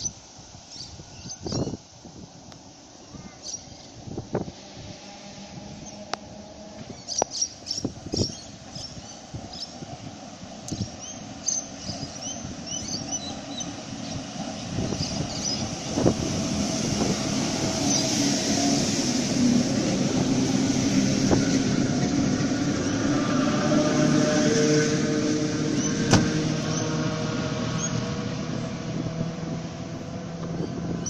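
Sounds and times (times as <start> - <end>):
electric train rumbling: 0.0 - 31.0
birds chirping: 6.8 - 10.0, 10.6 - 15.9.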